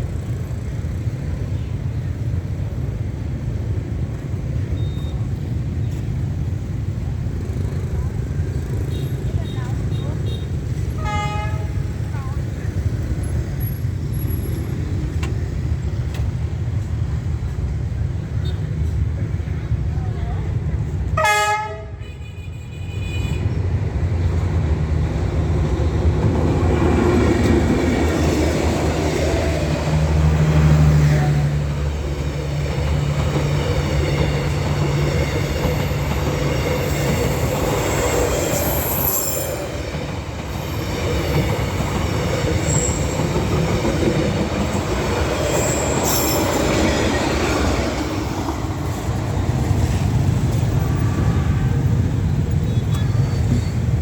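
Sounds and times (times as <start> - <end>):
train coaches rolling on track: 0.0 - 54.0
high wheel squeals: 33.4 - 44.0, 45.2 - 47.3, 49.9 - 54.0.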